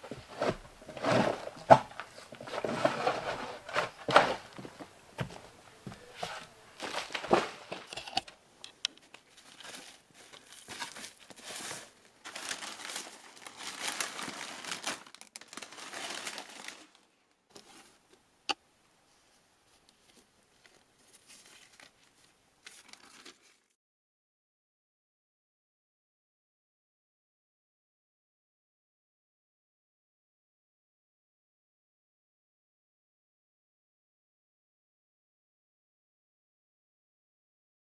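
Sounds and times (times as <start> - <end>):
rustling and crinkling: 0.0 - 18.2, 19.1 - 23.8.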